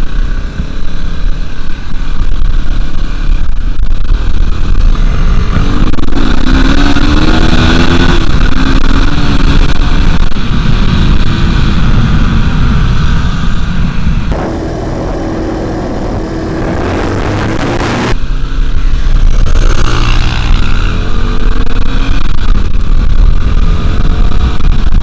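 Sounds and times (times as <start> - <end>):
wind rumble on microphone: 0.0 - 25.0
dirt bike engine revving: 14.3 - 18.2.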